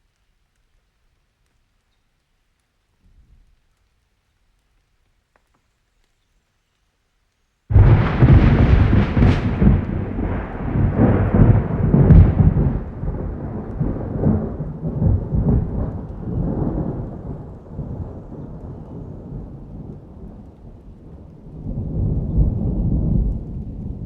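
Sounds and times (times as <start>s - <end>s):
rain: 0.0s - 24.0s
thunderclap and rumbling thunder: 7.7s - 24.0s.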